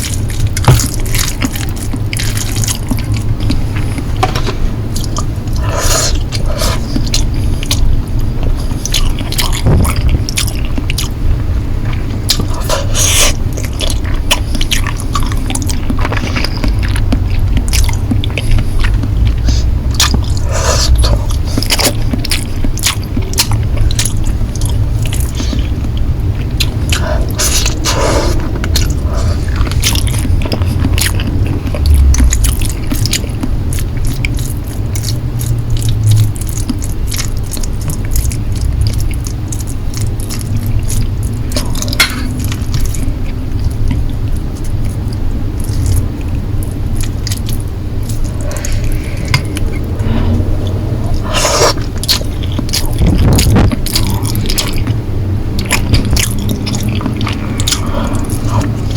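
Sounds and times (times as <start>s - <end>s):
close chewing of noodles: 0.0s - 58.9s
steady low rumble: 0.0s - 58.9s
wet mouth clicks: 12.3s - 58.9s
noisy swells: 39.3s - 58.9s.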